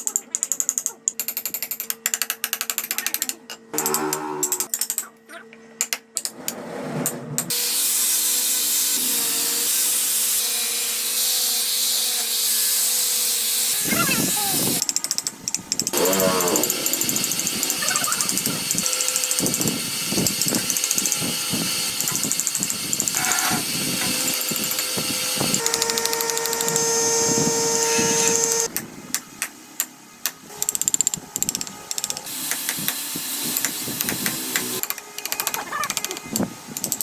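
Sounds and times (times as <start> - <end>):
power tools working wood: 3.7 - 4.7, 6.3 - 14.8, 15.9 - 28.7, 32.3 - 34.9
machine whine: 3.7 - 4.8, 15.7 - 28.7.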